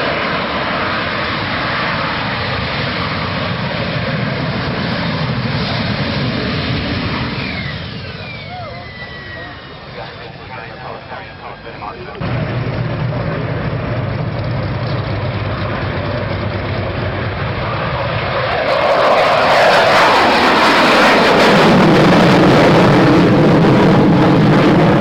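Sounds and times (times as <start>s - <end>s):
aircraft flying past: 0.0s - 25.0s.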